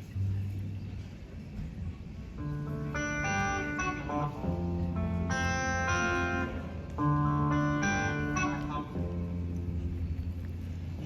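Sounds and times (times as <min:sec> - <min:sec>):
plucked guitar chords: 0:02.3 - 0:11.0.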